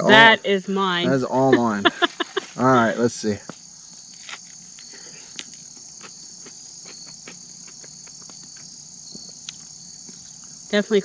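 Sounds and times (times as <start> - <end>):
crickets chirring: 0.0 - 11.0
person chewing crisp crust: 4.1 - 10.6.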